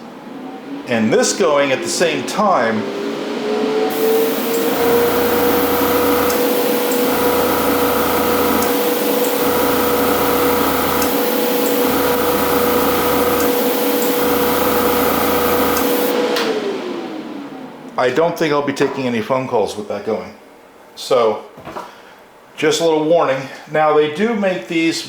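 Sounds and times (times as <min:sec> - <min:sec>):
machine cutting in and out: 0:03.9 - 0:16.2
compressor hum: 0:03.9 - 0:18.0.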